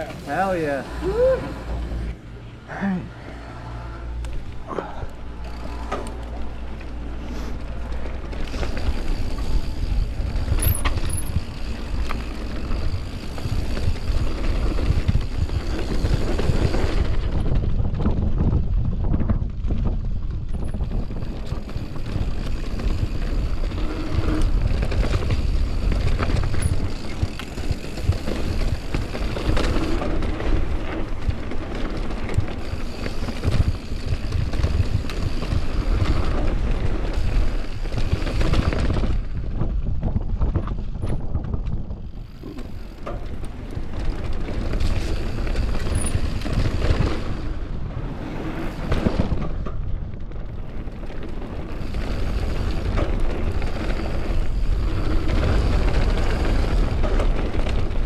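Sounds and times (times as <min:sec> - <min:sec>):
bike rattling over bumps: 0:00.0 - 0:02.3, 0:04.2 - 0:58.0
bike tyres on dirt: 0:00.0 - 0:58.0
wind buffeting microphone: 0:03.9 - 0:58.0.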